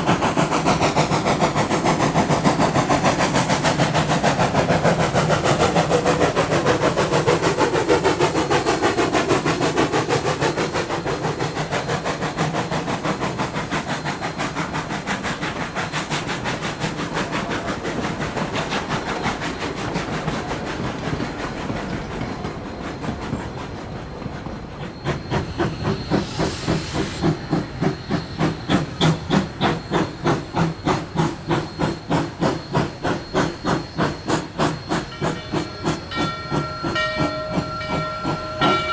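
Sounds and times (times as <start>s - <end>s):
locomotive running noise: 0.0s - 38.9s
steam hiss: 0.0s - 38.9s
steam locomotive exhaust chuffs: 0.0s - 38.9s.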